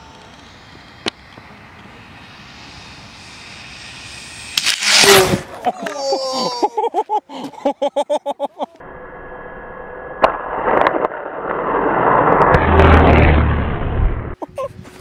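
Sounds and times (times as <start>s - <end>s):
rc plane rushing past: 0.0s - 5.6s, 8.8s - 14.4s.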